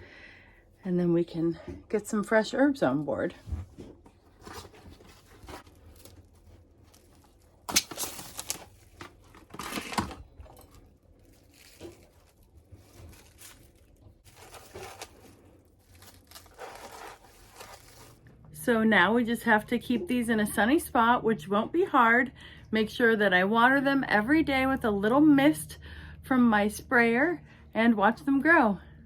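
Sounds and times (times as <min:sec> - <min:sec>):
plastic cling wrap crinkling: 0:04.4 - 0:18.3.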